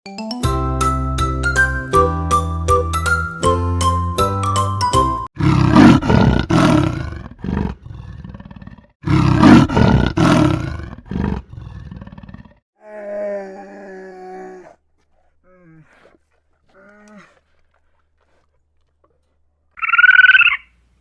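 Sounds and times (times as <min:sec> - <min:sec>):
chiming music jingle: 0:00.1 - 0:05.3.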